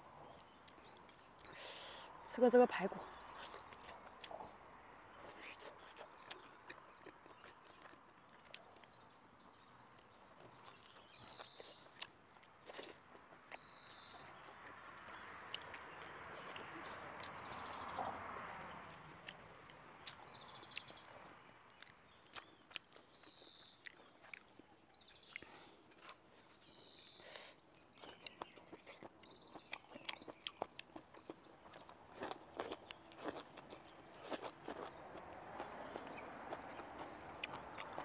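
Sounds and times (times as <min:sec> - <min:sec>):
person chewing and biting food: 0:05.6 - 0:08.9, 0:10.4 - 0:14.0, 0:20.0 - 0:20.9, 0:21.7 - 0:24.6, 0:27.7 - 0:38.0.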